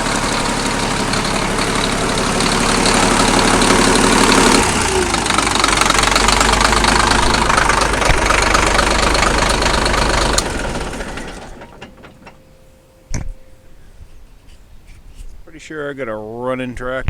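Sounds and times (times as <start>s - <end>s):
crawler tractor engine running: 0.0s - 12.8s.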